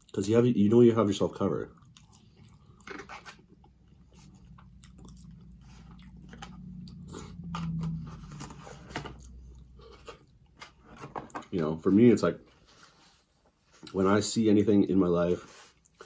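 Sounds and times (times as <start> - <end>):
chewing and crunching food: 0.0 - 11.6, 15.4 - 16.0
low hum: 1.6 - 11.5.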